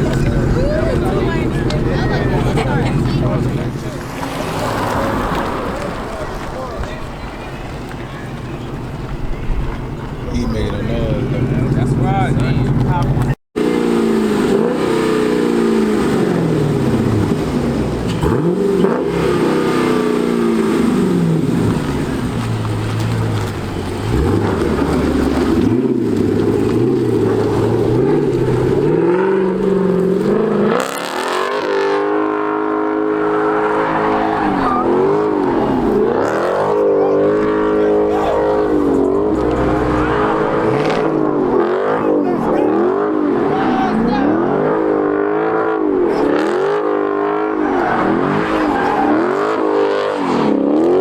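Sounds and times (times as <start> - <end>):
car engines revving: 0.0 - 51.0.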